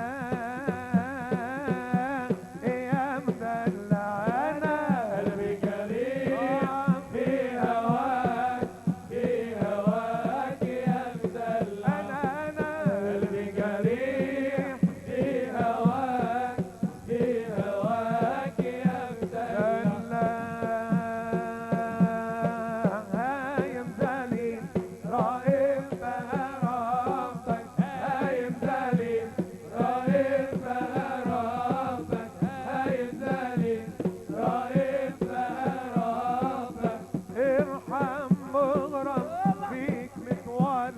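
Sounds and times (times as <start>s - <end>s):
quick drum beat: 0.1s - 40.9s.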